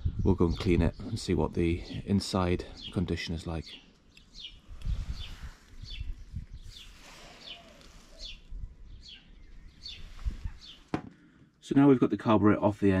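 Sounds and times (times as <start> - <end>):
small bird chirping: 2.7 - 10.9.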